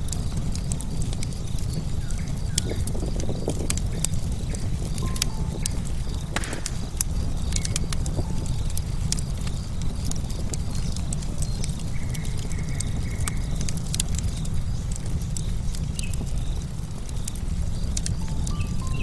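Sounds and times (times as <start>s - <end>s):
campfire logs crackling and popping: 0.0s - 19.0s
steady low rumble: 0.0s - 19.0s
bird whistling: 5.0s - 5.8s, 18.2s - 19.0s.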